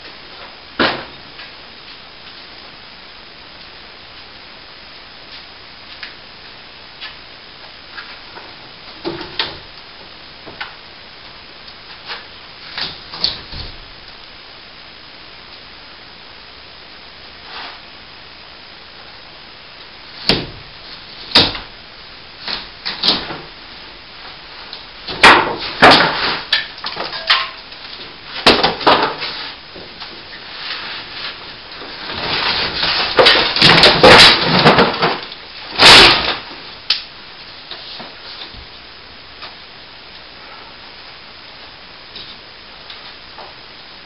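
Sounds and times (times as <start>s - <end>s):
debris clattering: 25.1s - 27.7s, 30.5s - 36.5s
debris knocking and thumping: 25.1s - 36.6s.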